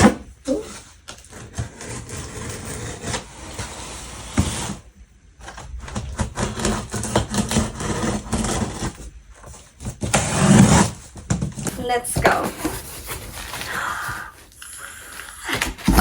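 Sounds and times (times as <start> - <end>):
cardboard box being opened: 10.8 - 16.0
packaging rustling: 11.6 - 16.0.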